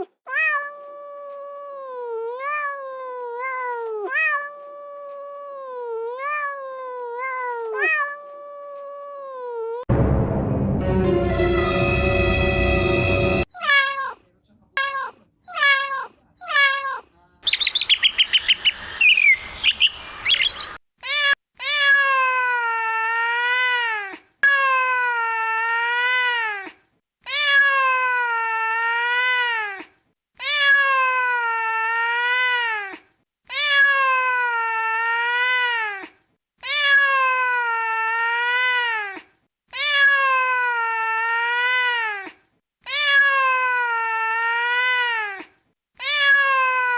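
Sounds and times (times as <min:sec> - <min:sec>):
cat meowing: 0:00.3 - 0:09.8, 0:13.5 - 0:14.2, 0:14.8 - 0:17.1, 0:21.0 - 0:46.9
rapid bird chirping: 0:17.4 - 0:20.8.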